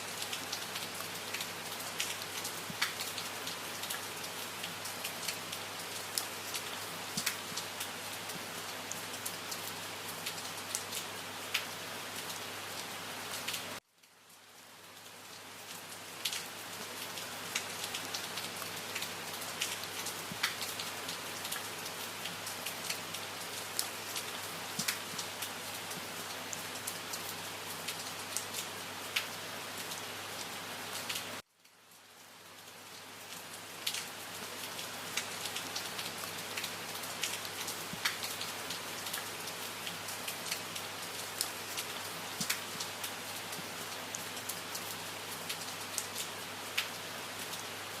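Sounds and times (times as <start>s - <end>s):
rain falling: 0.0s - 48.0s
raindrops ticking: 0.1s - 7.8s, 16.2s - 20.8s, 23.7s - 26.2s, 35.2s - 42.9s.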